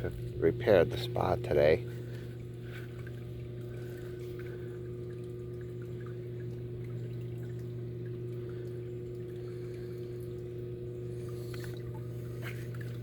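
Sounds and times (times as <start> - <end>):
hot tub pump humming: 0.0 - 13.0
water moving: 0.1 - 13.0.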